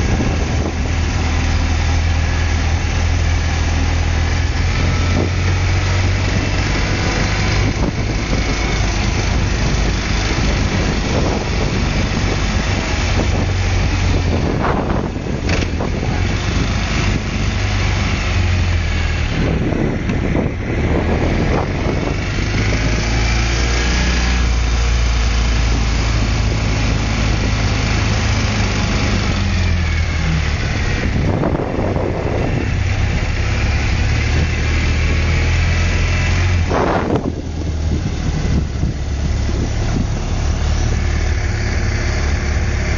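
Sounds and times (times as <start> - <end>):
motorcycle engine running: 0.0 - 42.9
road and wind noise: 0.0 - 42.9.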